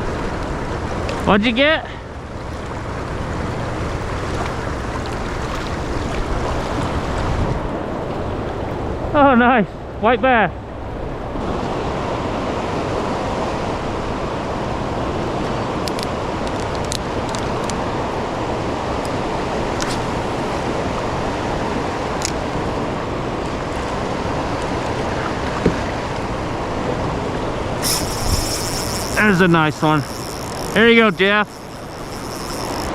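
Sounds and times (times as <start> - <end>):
fast water current rushing: 2.1 - 9.0, 19.2 - 32.9
faint ticks: 27.8 - 32.9.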